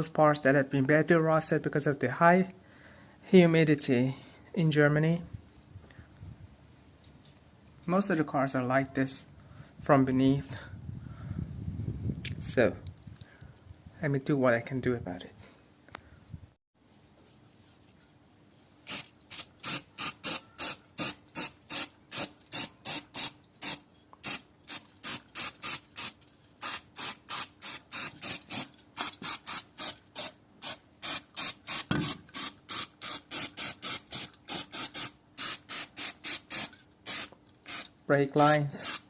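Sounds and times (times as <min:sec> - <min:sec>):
trigger spray bottle squirting: 0:18.9 - 0:37.9.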